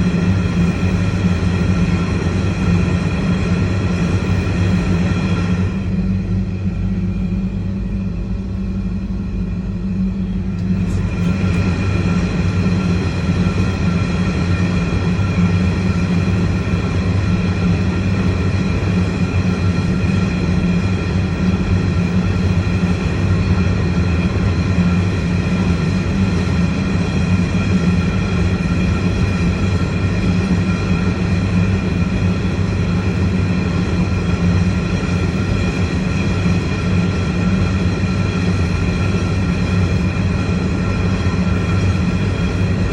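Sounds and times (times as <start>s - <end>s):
train rumbling past: 0.0s - 17.0s
faint steady whine: 0.0s - 42.9s.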